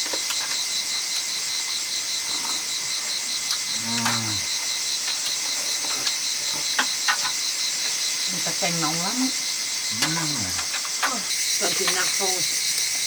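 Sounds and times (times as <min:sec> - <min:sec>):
insects buzzing: 0:00.0 - 0:13.0
low drawn-out call: 0:09.9 - 0:10.7.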